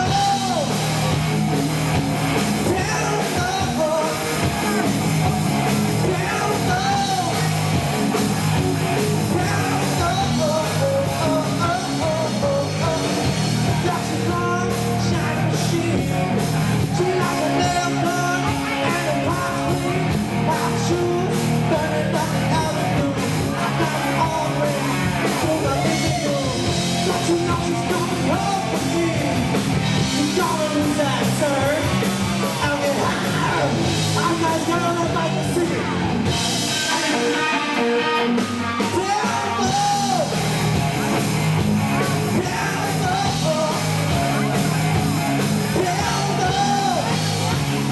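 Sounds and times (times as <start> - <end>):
person singing: 0.0 - 1.6, 2.4 - 41.2, 41.9 - 47.9
live rock band playing: 0.0 - 47.9.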